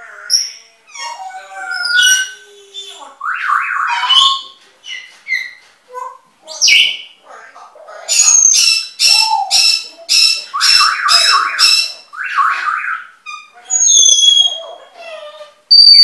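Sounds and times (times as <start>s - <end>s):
birds whistling and squawking: 0.2s - 5.6s, 8.1s - 14.8s, 15.7s - 16.0s
sharp repeated bird calls: 8.1s - 14.6s, 15.7s - 16.0s.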